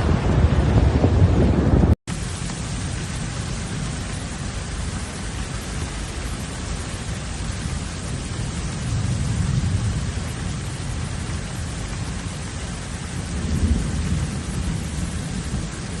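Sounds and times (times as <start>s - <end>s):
low rumbles: 0.0s - 6.7s
heavy rain falling: 0.0s - 16.0s.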